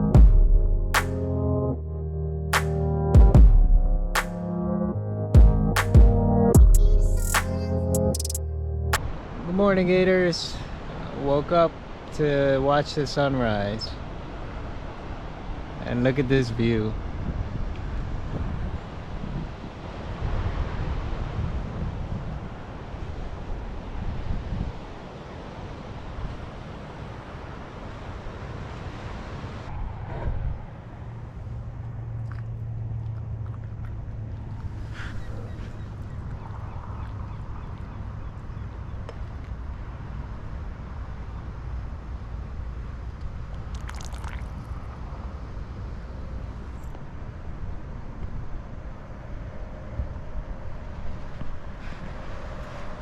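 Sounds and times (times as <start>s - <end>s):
wind: 0.0s - 53.0s
ocean surf: 9.0s - 31.7s
wind buffeting microphone: 17.0s - 27.6s.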